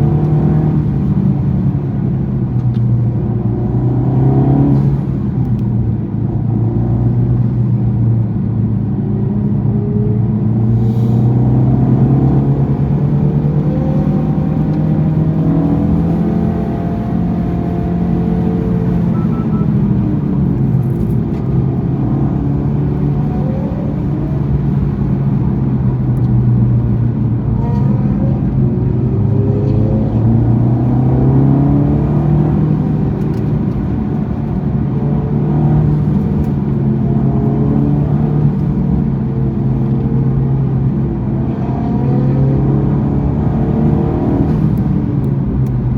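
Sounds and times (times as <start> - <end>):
car engine revving hard: 10.7 - 45.9.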